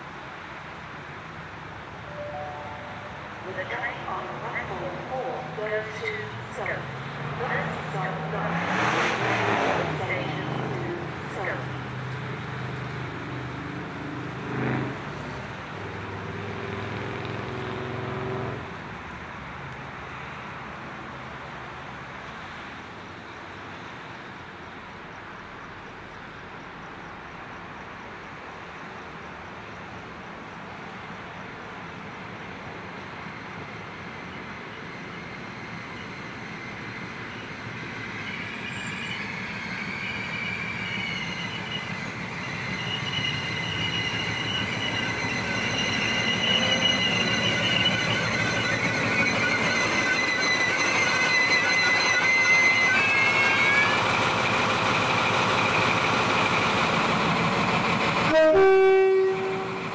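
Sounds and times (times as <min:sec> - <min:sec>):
diesel train engine drone: 0:00.0 - 0:59.9
train rumbling hiss: 0:00.0 - 0:59.9
wheel and brake squeal: 0:34.9 - 0:56.6.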